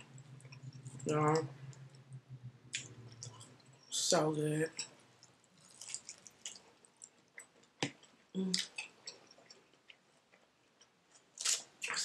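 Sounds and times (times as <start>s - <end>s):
person chewing wetly: 2.7s - 3.9s, 4.8s - 11.6s.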